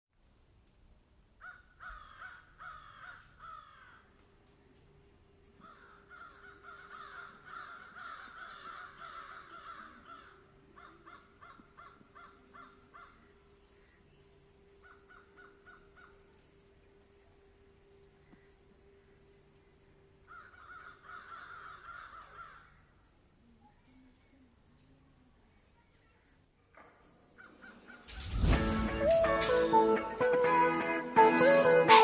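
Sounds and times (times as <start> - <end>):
faint steady hum: 0.2 - 26.1
birds calling: 4.7 - 16.8, 27.3 - 30.1.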